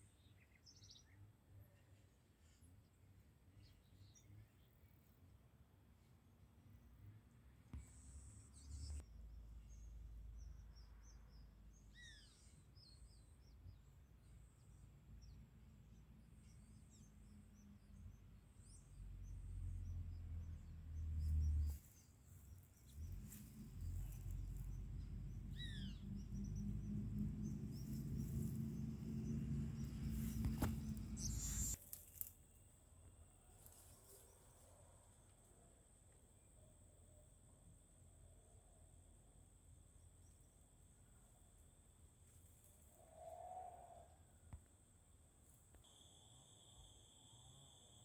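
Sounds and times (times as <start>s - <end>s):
birds chirping: 19.8s - 31.8s
low rumble: 22.9s - 31.8s
whistled bird notes: 30.3s - 31.8s.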